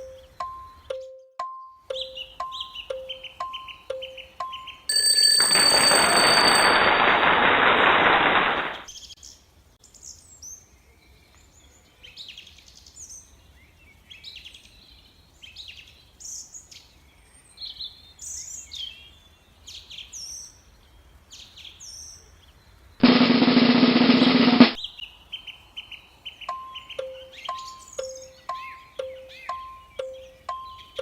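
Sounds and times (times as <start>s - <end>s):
bird chirping: 0.0s - 5.0s, 24.7s - 31.0s.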